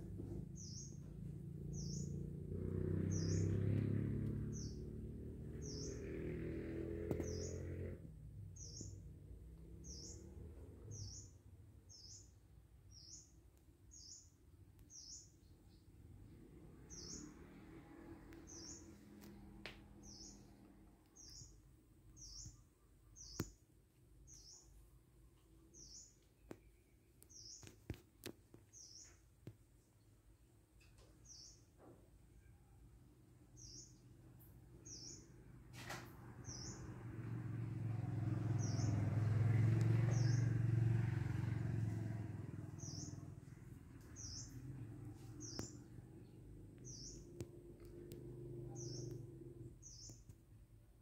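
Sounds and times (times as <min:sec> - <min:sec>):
small bird chirping: 0:00.3 - 0:02.2, 0:03.0 - 0:04.9, 0:05.5 - 0:06.3, 0:07.0 - 0:08.0, 0:08.6 - 0:09.1, 0:09.8 - 0:16.0, 0:16.8 - 0:17.6, 0:18.3 - 0:24.9, 0:25.6 - 0:29.3, 0:30.8 - 0:31.8, 0:33.5 - 0:35.4, 0:38.5 - 0:39.0, 0:39.8 - 0:40.8, 0:41.8 - 0:50.6.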